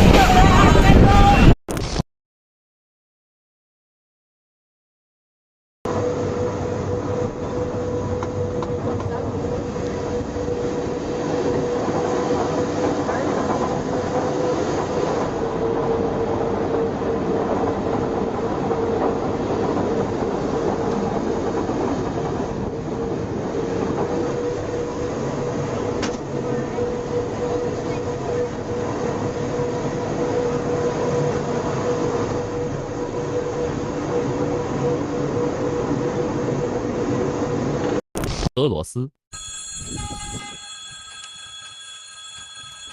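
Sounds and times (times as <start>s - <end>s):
train rolling on rails: 5.9s - 38.0s.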